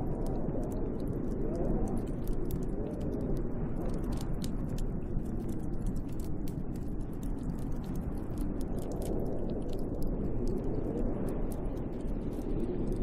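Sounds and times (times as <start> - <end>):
sharp crackling clicks: 0.0 - 13.0
snowstorm wind howling: 0.0 - 13.0.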